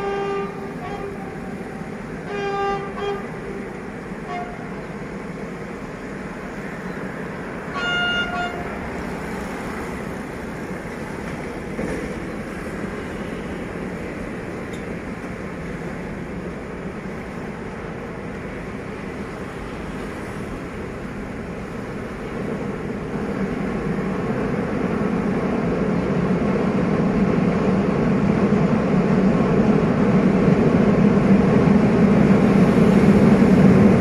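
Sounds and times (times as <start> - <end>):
diesel locomotive horn blasts: 0.0 - 4.9, 7.7 - 8.9
train rumbling across a bridge: 0.0 - 34.0.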